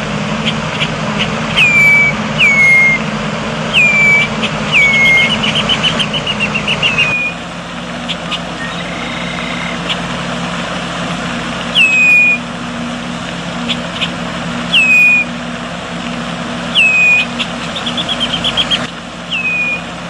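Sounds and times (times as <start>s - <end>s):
low hum: 0.0s - 20.0s
bird whistling call: 0.4s - 3.1s, 3.7s - 7.4s, 8.0s - 10.1s, 11.6s - 12.5s, 13.6s - 15.4s, 16.7s - 20.0s.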